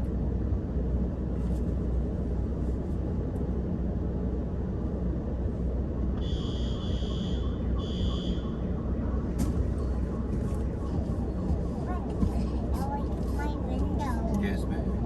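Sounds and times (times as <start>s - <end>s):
electronic buzzer tone: 6.2s - 8.4s.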